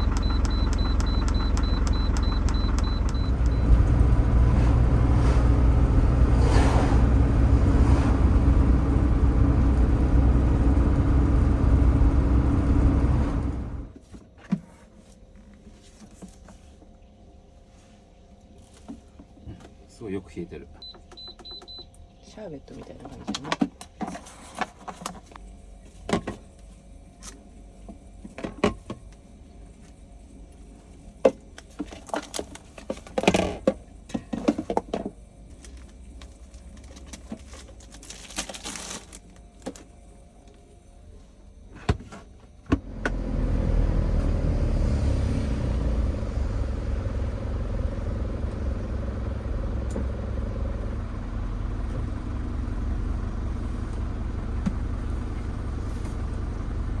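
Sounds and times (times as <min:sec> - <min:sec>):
bus engine rumbling: 0:00.0 - 0:14.0, 0:42.8 - 0:57.0.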